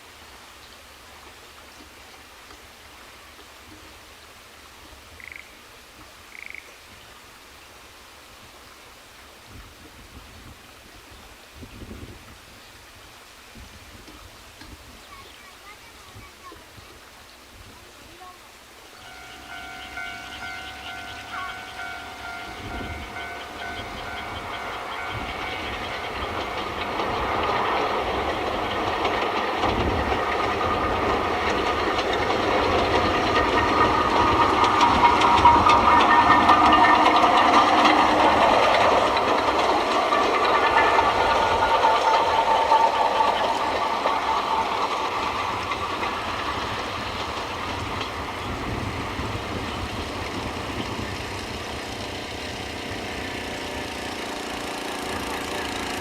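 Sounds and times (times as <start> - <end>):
diesel train passing: 14.2 - 56.0.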